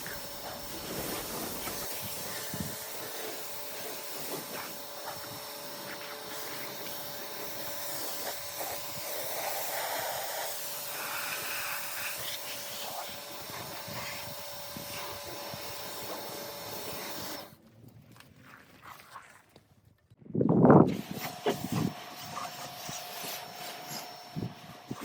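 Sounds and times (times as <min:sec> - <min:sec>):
pressure washer spraying water: 0:00.0 - 0:17.6, 0:20.9 - 0:25.0.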